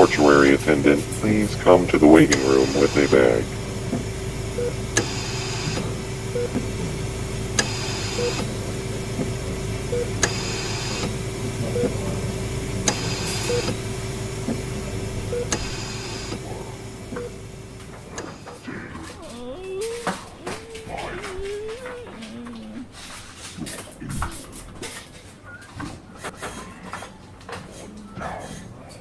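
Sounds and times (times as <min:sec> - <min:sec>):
electrical hum: 0:00.0 - 0:29.0
machine click and hiss: 0:02.2 - 0:03.2, 0:12.8 - 0:13.8.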